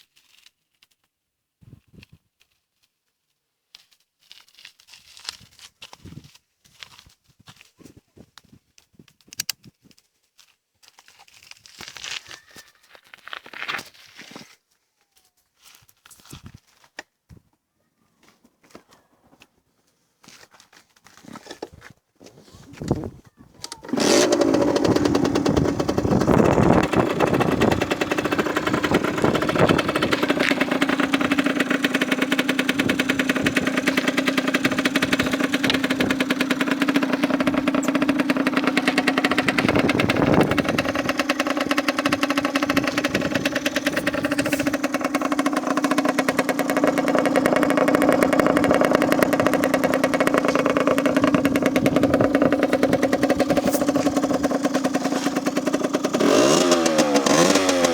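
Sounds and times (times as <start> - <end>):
motorcycle engine idling: 23.6 - 57.9
engine throttle blips: 23.7 - 57.9.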